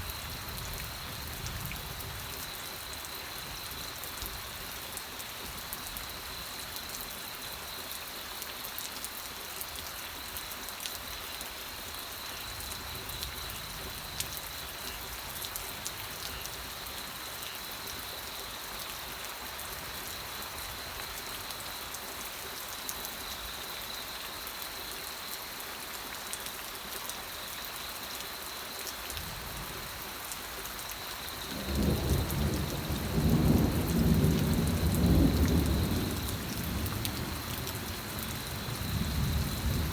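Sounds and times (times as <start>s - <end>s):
raindrops pattering on surfaces: 0.0s - 39.9s
steady rain falling: 0.0s - 39.9s
thunder rumble: 31.5s - 39.9s.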